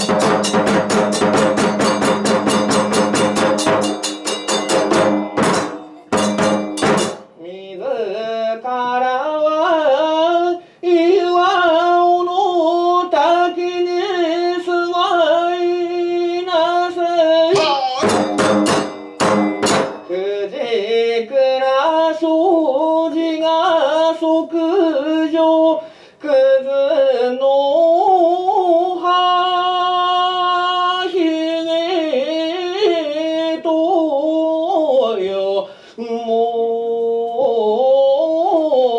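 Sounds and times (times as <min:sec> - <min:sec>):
sharp percussion strikes: 0:00.0 - 0:07.4, 0:17.5 - 0:20.3
person singing long wavering notes: 0:17.5 - 0:18.4.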